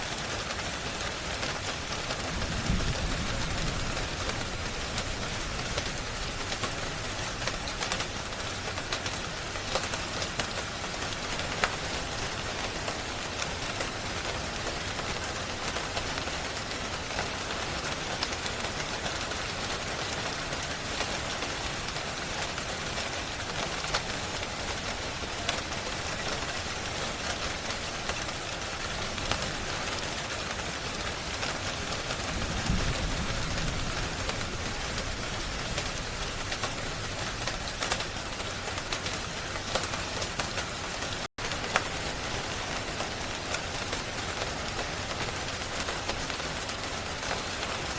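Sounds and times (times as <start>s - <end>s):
steady rain: 0.0s - 47.9s
fireplace crackling and popping: 33.3s - 42.3s.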